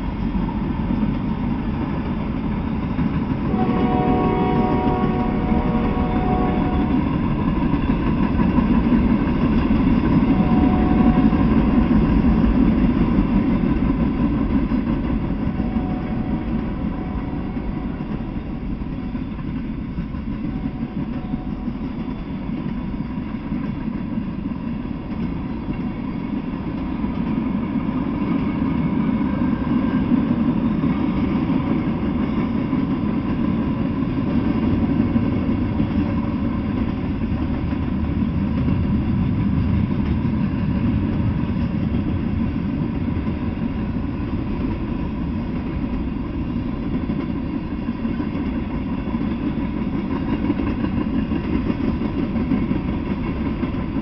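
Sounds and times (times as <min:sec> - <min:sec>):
freight train rumbling past: 0:00.0 - 0:54.0
train horn chord: 0:03.4 - 0:07.4, 0:10.1 - 0:11.8, 0:15.3 - 0:19.4, 0:20.4 - 0:22.2.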